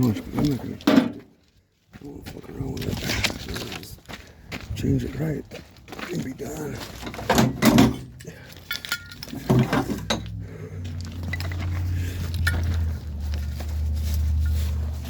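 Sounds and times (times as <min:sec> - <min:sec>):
metal plumbing parts clinking: 0:07.0 - 0:10.4, 0:11.2 - 0:12.9.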